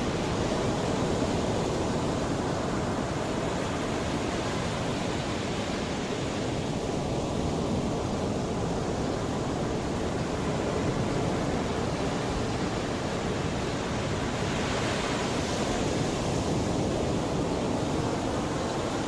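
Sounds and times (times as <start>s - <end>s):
sea waves washing onto shore: 0.0s - 19.0s.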